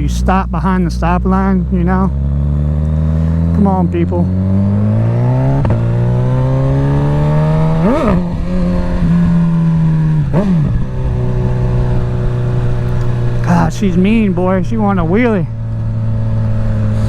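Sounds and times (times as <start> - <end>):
quick gear changes: 0.0 - 17.0
motorcycle engine accelerating hard: 1.0 - 17.0.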